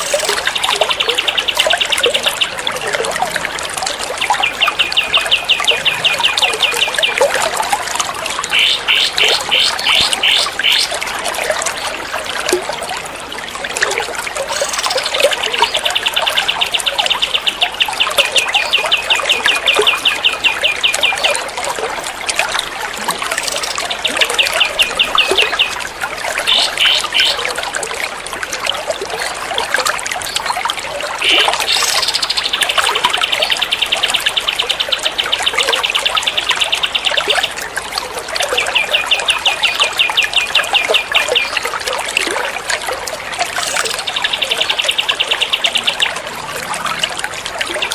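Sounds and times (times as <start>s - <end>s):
trickling water: 0.0s - 47.9s.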